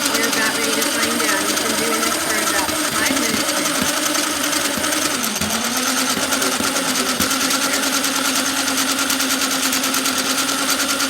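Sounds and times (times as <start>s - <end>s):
cordless drill motor whining: 0.0s - 11.0s.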